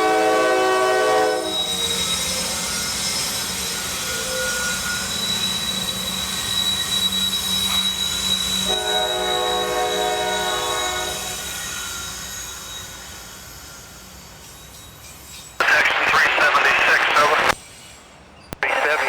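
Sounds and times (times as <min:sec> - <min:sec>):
locomotive air horn: 0:00.0 - 0:01.6, 0:08.7 - 0:11.5
train wheel squeal: 0:00.0 - 0:15.6, 0:17.6 - 0:18.6.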